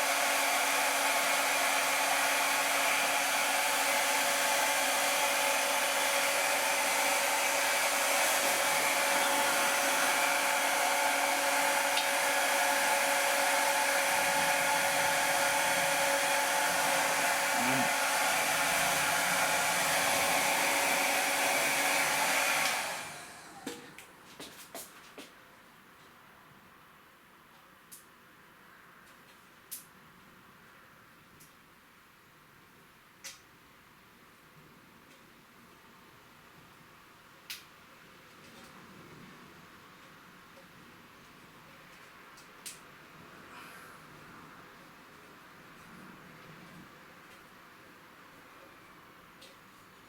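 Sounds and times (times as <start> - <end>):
hot-air blower whining: 0.0 - 24.1.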